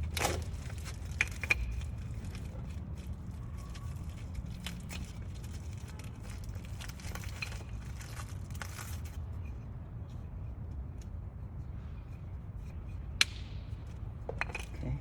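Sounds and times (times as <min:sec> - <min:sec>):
brake pads and packaging handled: 0:00.0 - 0:09.3.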